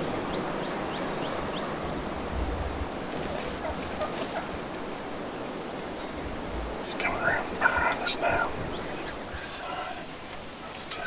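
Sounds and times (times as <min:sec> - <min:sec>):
rushing wind: 0:00.0 - 0:11.0.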